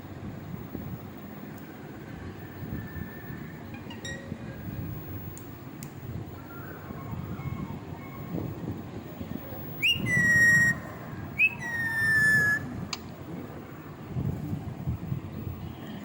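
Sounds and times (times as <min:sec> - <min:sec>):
parrot whistling: 0:09.8 - 0:12.7.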